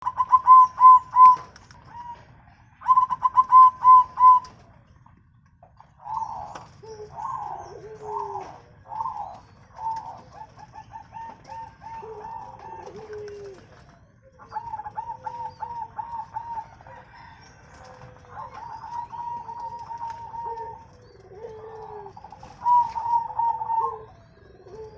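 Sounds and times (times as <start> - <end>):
doves cooing: 0.0 - 24.9
lower falling bird calls: 6.0 - 24.9.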